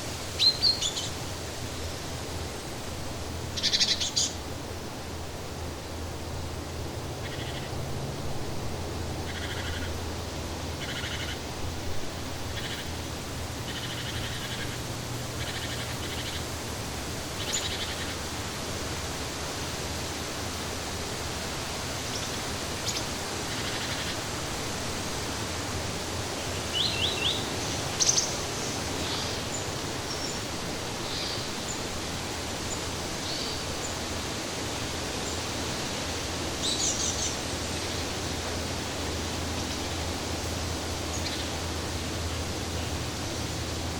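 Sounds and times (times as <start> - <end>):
flowing water rushing: 0.0 - 43.9
bird chirps and trills: 0.4 - 1.2, 3.6 - 4.4, 9.3 - 10.0, 10.8 - 11.4, 12.5 - 13.0, 13.6 - 16.5.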